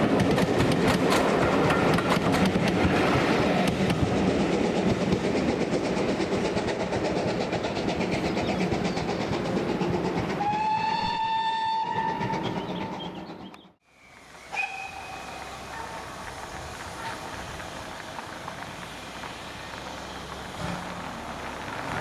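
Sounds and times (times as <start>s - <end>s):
train wheels clicking over rail joints: 0.0s - 22.0s
steam whistle blast: 10.4s - 12.3s, 14.3s - 16.2s.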